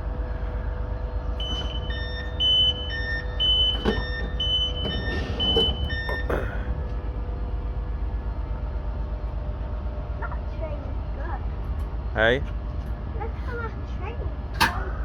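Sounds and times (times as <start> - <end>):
low engine rumble and hum: 0.0 - 15.0
short electronic beeps: 1.4 - 6.3
train doors knocking shut: 1.4 - 7.1, 14.5 - 15.0.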